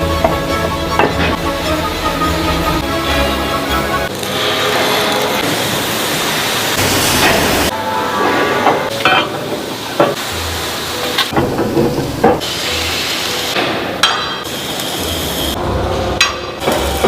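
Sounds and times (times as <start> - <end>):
workshop noise: 0.0 - 17.0
hammer striking steel: 8.0 - 10.2, 13.6 - 14.5, 16.2 - 17.0.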